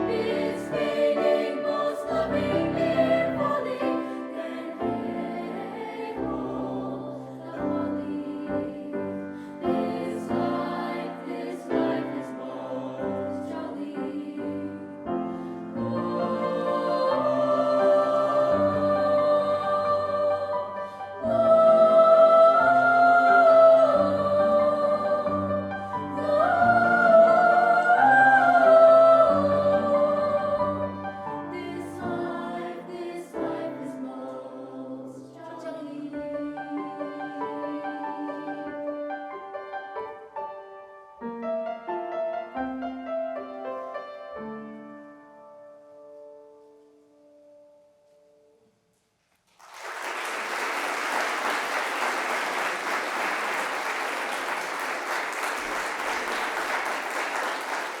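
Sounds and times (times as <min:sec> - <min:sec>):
choir singing held chords: 0:00.0 - 0:39.4
audience applause: 0:49.5 - 0:58.0.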